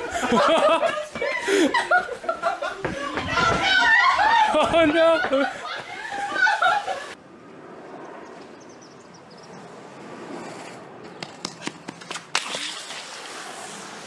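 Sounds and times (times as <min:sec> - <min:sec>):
skateboard clacking on asphalt: 0:10.1 - 0:12.4.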